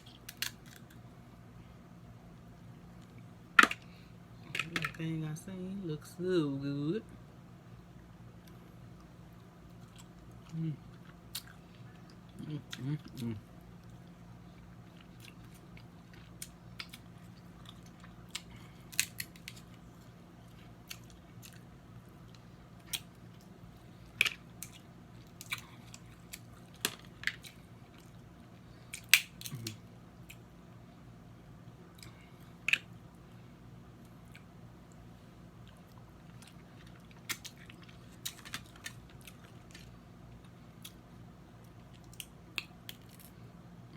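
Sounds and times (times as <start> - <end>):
low steady hum: 0.0 - 43.9
shell cracking: 0.2 - 1.0, 18.4 - 19.7, 28.9 - 29.7
chewing crab legs: 8.4 - 30.5, 34.0 - 41.1.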